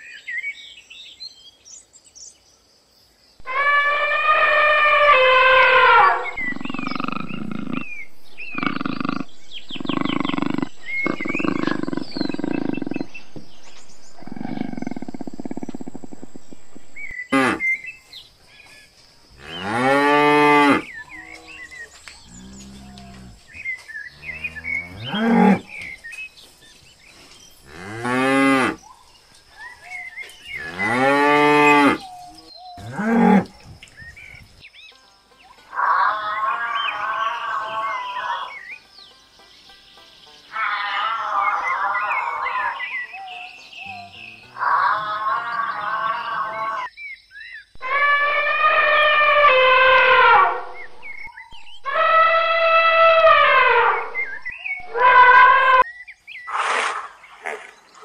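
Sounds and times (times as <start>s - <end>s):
buffalo bellowing: 3.4s - 13.3s, 47.8s - 55.8s.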